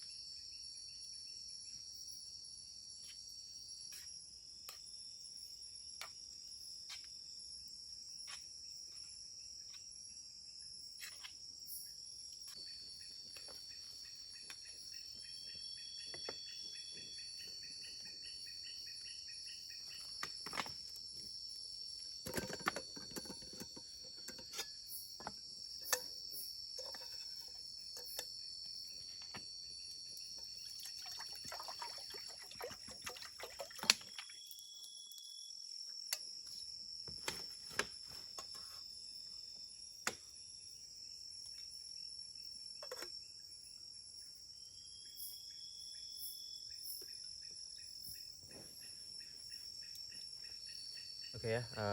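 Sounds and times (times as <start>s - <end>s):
forest insects chorus: 0.0s - 51.9s
pulsing insect trill: 0.0s - 51.9s.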